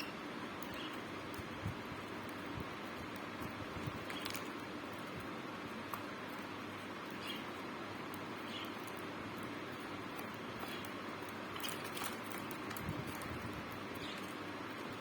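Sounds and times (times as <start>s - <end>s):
faint bird chirps: 0.0s - 1.2s, 7.1s - 7.6s.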